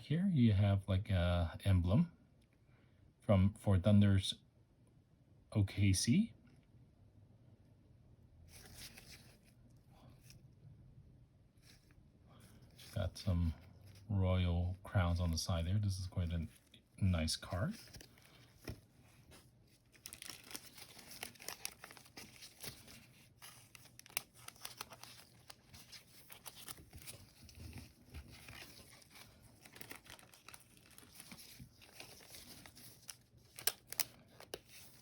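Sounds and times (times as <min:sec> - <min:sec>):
cards and packaging rustling: 0:08.5 - 0:10.4, 0:11.6 - 0:35.0.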